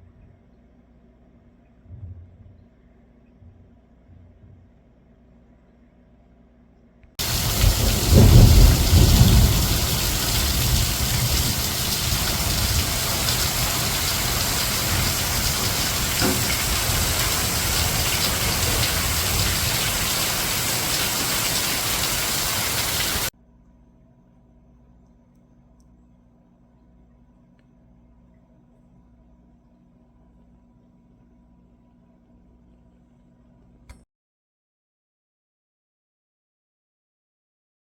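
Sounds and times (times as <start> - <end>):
deep rumble: 7.2 - 23.3.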